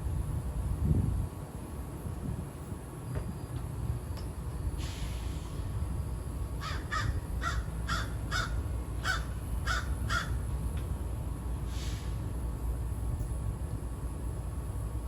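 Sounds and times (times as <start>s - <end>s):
crow cawing: 6.6s - 10.4s.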